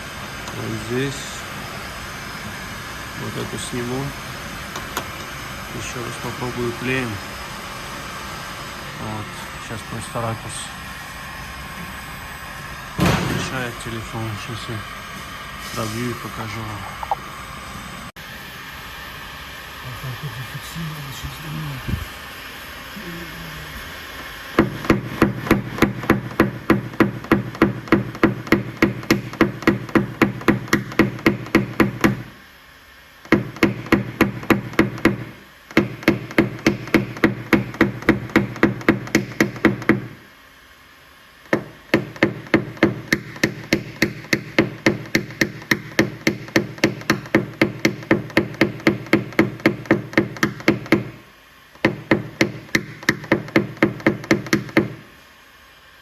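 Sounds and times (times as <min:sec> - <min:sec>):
hammer tapping on metal punch: 0:24.6 - 0:32.3, 0:33.3 - 0:40.2, 0:41.5 - 0:51.2, 0:51.8 - 0:55.0.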